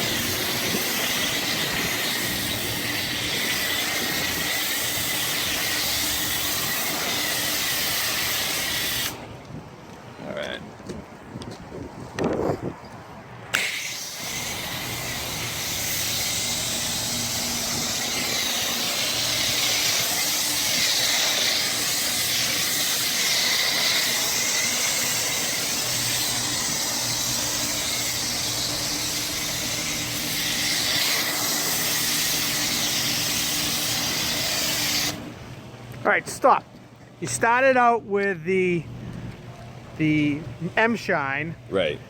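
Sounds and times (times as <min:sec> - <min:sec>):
pressure washer spraying foam: 0:00.0 - 0:09.3, 0:13.5 - 0:35.3
low machine hum: 0:14.4 - 0:21.9.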